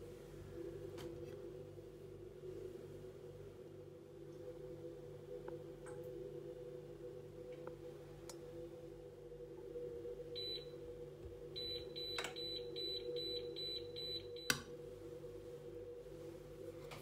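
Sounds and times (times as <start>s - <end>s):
steady hum: 0.0s - 17.0s
appliance beeping: 10.4s - 10.8s, 11.5s - 14.7s.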